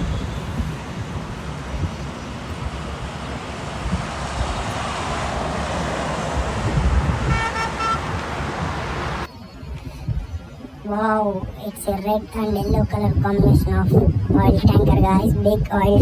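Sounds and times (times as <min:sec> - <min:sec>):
traffic noise: 0:00.0 - 0:16.0
horn beeps: 0:07.1 - 0:09.3.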